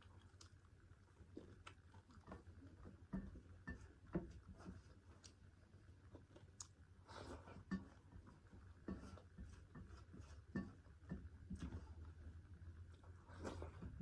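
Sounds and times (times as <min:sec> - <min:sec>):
chewing and mouth clicks: 0:00.0 - 0:02.9, 0:05.0 - 0:06.9.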